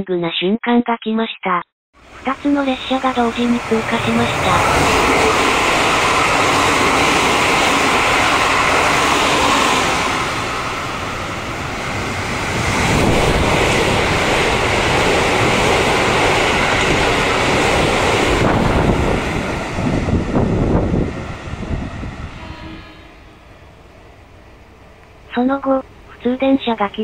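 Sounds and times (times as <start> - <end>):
train wheels rushing on rail: 2.0 - 24.0
rushing air: 3.4 - 24.3.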